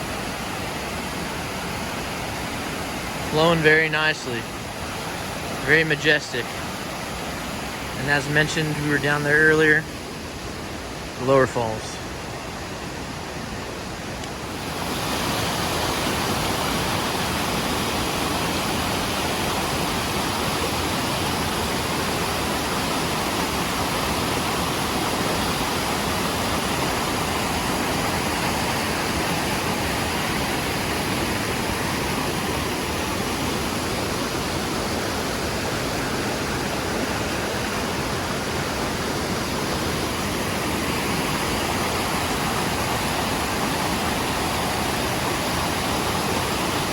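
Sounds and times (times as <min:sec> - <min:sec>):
small waterfall rushing: 0:00.0 - 0:46.9.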